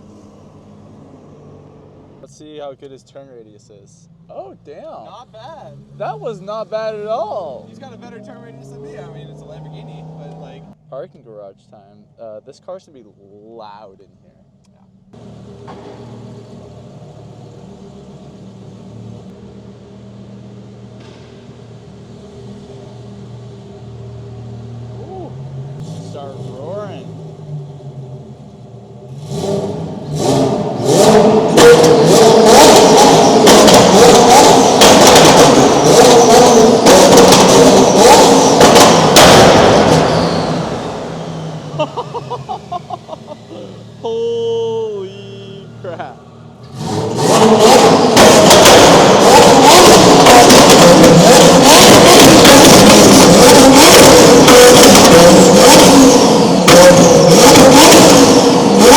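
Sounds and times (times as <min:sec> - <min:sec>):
car engine idling: 0:00.0 - 0:58.9
exhaust pops and bangs: 0:15.6 - 0:16.4, 0:30.5 - 0:41.2, 0:46.6 - 0:58.9.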